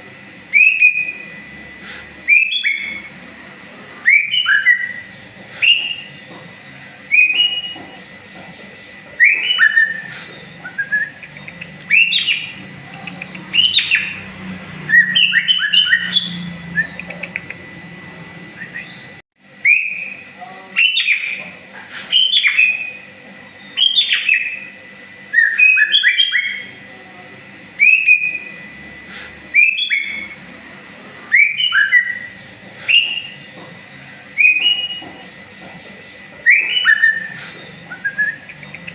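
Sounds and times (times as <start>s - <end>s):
bird whistled song: 0.1s - 1.4s, 2.2s - 3.1s, 4.0s - 6.2s, 7.1s - 7.8s, 9.2s - 12.6s, 13.3s - 20.2s, 20.8s - 21.4s, 22.1s - 23.0s, 23.6s - 24.7s, 25.3s - 26.7s, 27.4s - 28.5s, 29.5s - 30.4s, 31.3s - 33.5s, 34.4s - 35.1s, 36.4s - 38.9s.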